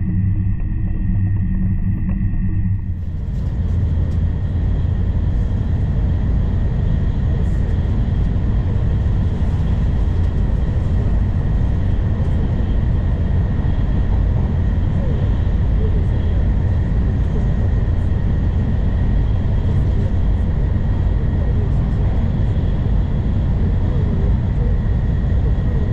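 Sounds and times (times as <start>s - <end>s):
faint steady whine: 0.0s - 25.9s
train running at speed: 2.8s - 25.9s.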